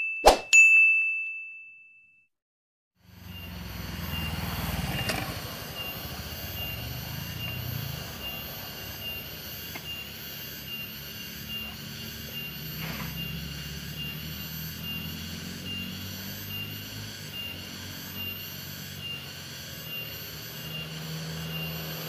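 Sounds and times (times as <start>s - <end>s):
bell-like ding: 0.0s - 2.2s
motorcycle engine rumbling: 3.0s - 22.0s
faint pulsing high tone: 3.2s - 22.0s.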